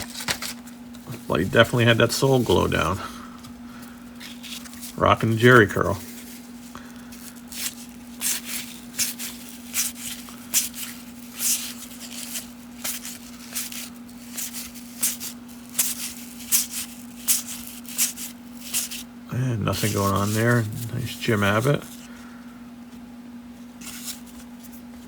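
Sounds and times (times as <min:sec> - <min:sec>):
cards flipped by hand: 0:00.0 - 0:01.2, 0:03.8 - 0:19.0, 0:23.8 - 0:25.0.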